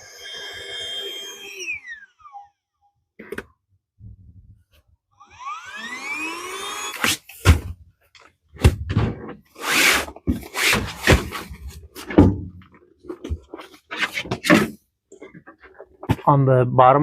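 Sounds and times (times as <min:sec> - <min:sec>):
air mattress squealing: 0:00.0 - 0:02.6, 0:09.6 - 0:11.4
knocks and thumps: 0:07.4 - 0:07.8, 0:08.6 - 0:09.5, 0:10.2 - 0:16.3.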